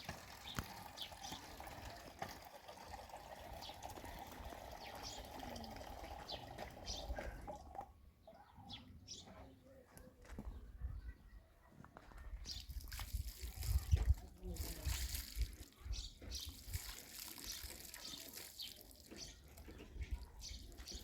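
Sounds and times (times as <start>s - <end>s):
small birds chirping: 0.0s - 2.1s, 3.5s - 21.0s
running water rushing: 0.0s - 7.8s.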